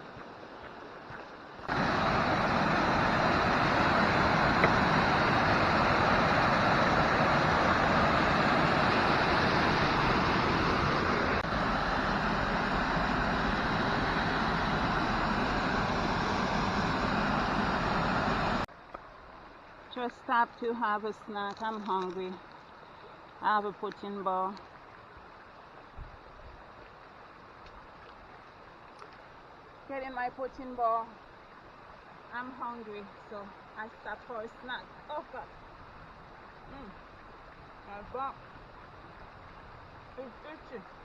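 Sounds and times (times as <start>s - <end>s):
waterfall rushing: 1.6s - 18.7s.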